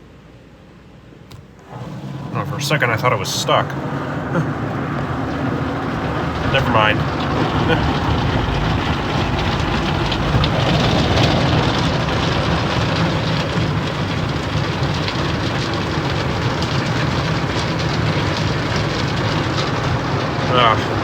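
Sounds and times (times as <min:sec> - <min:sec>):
low machine hum: 0:00.0 - 0:21.0
cloth brushes scrubbing car: 0:01.6 - 0:08.3.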